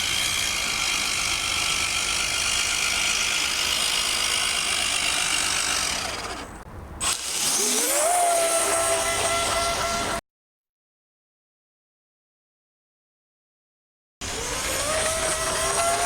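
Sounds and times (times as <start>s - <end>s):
rc boat motor whining: 0.0s - 10.2s, 14.2s - 16.0s.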